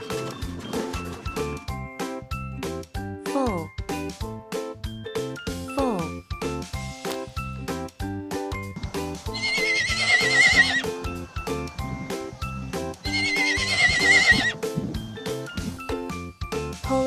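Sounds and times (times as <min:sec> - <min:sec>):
background music: 0:00.0 - 0:17.0
foal whinnying: 0:09.4 - 0:10.9, 0:13.0 - 0:14.6.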